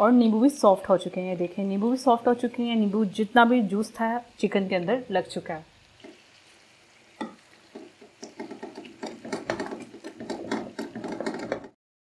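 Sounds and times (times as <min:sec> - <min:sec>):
metal spatula clattering and scraping: 0:07.2 - 0:11.8.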